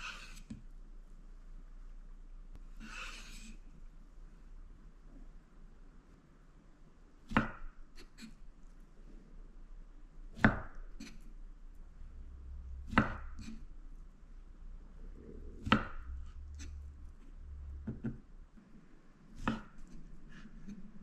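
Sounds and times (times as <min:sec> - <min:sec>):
knife chopping on cutting board: 0:07.3 - 0:08.3, 0:12.9 - 0:13.6, 0:15.6 - 0:16.0, 0:19.4 - 0:19.9.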